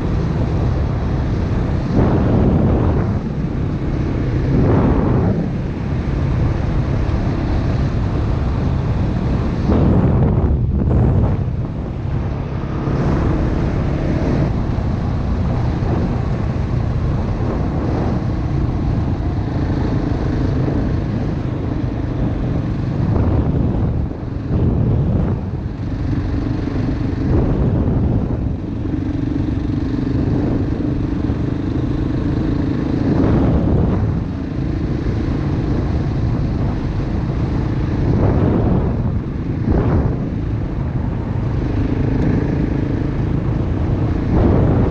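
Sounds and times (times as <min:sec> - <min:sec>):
dirt bike engine running: 0:00.0 - 0:44.9.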